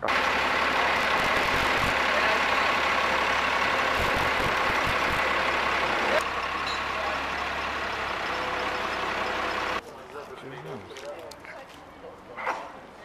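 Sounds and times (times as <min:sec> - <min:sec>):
heavy vehicle engine running: 0:00.0 - 0:09.8.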